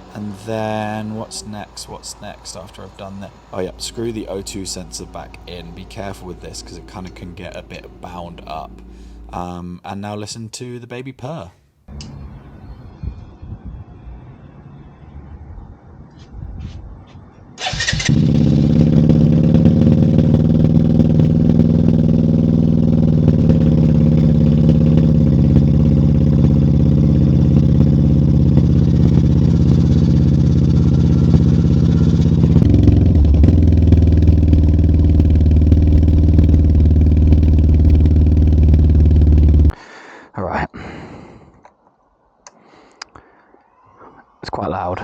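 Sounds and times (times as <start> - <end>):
motorcycle engine starting and idling: 0.0 - 9.5, 17.6 - 39.8.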